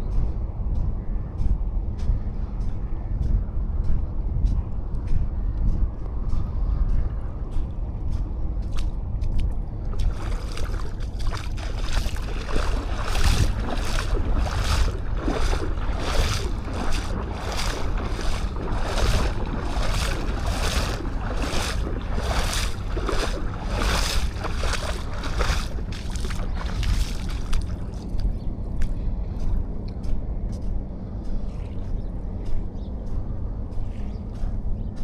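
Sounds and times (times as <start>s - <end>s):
wind on microphone: 0.0s - 35.0s
footsteps crunching on sand: 6.1s - 35.0s.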